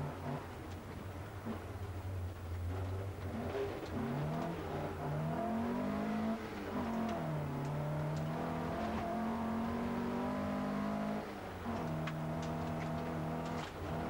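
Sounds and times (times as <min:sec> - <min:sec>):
car engine accelerating: 0:02.6 - 0:14.0.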